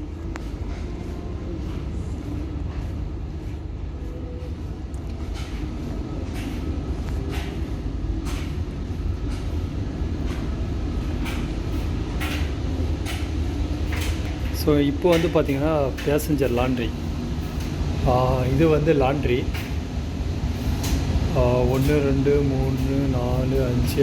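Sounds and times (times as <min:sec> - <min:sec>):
footsteps on corridor floor: 0:00.0 - 0:16.8
ship machinery rumble: 0:00.0 - 0:24.0.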